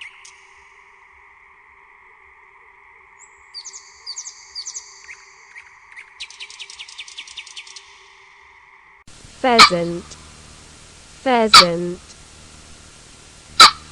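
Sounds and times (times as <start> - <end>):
nightingale singing: 3.2 - 7.8, 9.4 - 12.2, 13.5 - 13.9.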